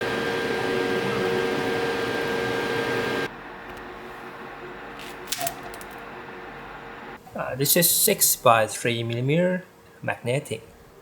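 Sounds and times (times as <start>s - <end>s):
machine hum with tones: 0.0s - 7.2s
room noise: 0.0s - 11.0s.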